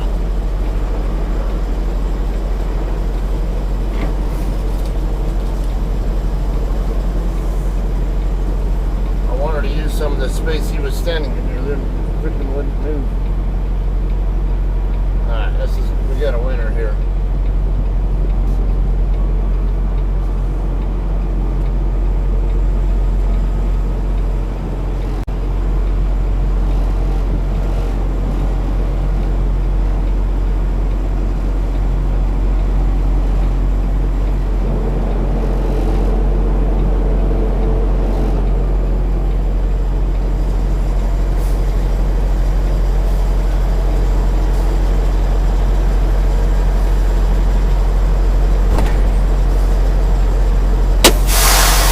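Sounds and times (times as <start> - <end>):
diesel truck engine running: 0.0 - 51.9.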